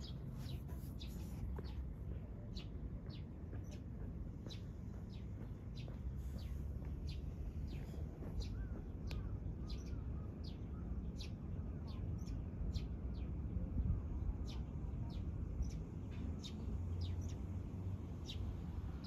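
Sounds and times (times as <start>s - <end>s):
small bird chirping: 0.0s - 13.3s
steady low rumble: 0.0s - 17.2s.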